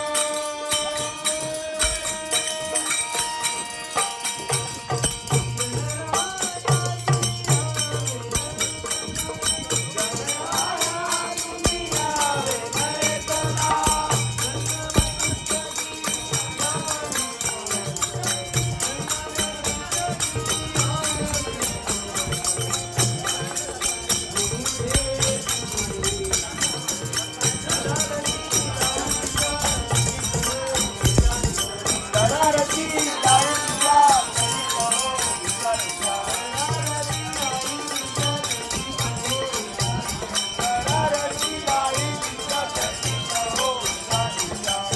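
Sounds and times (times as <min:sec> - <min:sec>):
hand cymbals jingling: 0:00.0 - 0:44.9
harmonium: 0:00.0 - 0:44.9
person singing: 0:00.0 - 0:44.9
low drum pulsing: 0:31.1 - 0:31.8.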